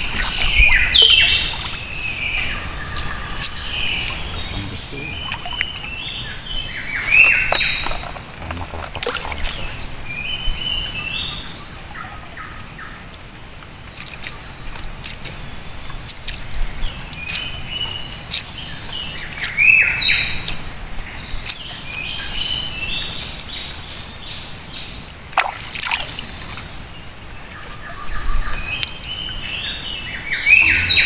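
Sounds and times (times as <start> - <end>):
birds whistling calls: 0.0 - 8.2, 27.5 - 31.0
sharp ticks: 18.2 - 19.6.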